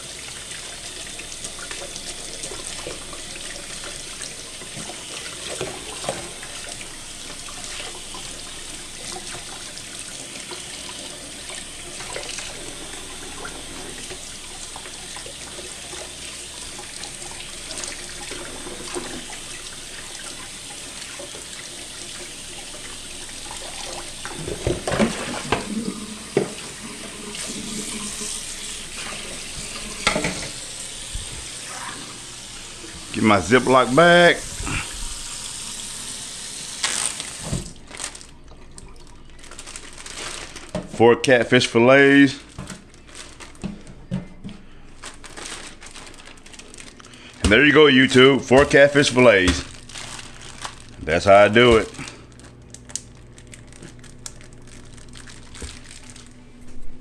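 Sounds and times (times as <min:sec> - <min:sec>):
faucet running water into sink: 0:00.0 - 0:39.9.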